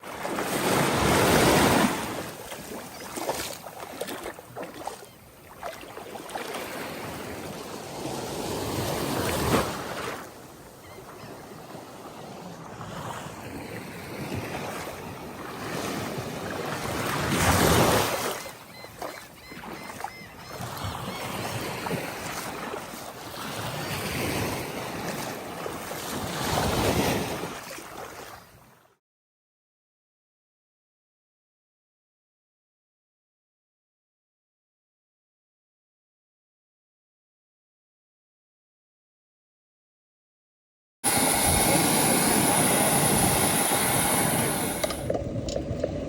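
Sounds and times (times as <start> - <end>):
ocean waves washing onto beach: 0.0 - 28.1, 41.0 - 46.0.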